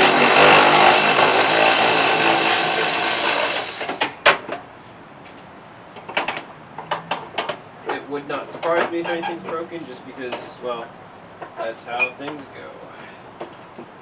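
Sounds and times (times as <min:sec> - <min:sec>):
power drill running: 0:00.0 - 0:04.0.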